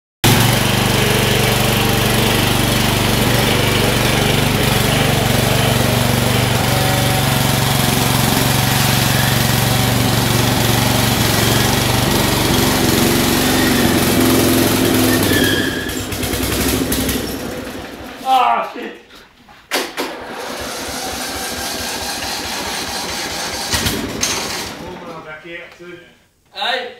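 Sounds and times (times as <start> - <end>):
lawn mower engine running: 0.2 - 18.3, 20.0 - 25.1.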